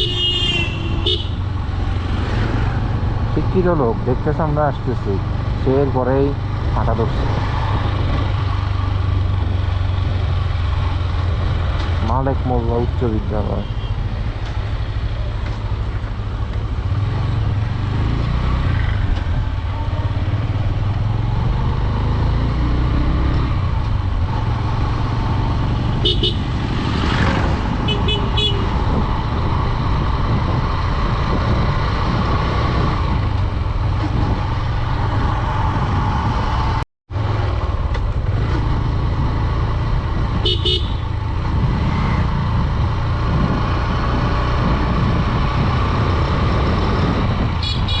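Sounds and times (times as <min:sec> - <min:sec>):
motorcycle engine running: 0:23.7 - 0:30.7, 0:37.2 - 0:43.6
wind rush on microphone: 0:26.5 - 0:36.8, 0:38.2 - 0:48.0.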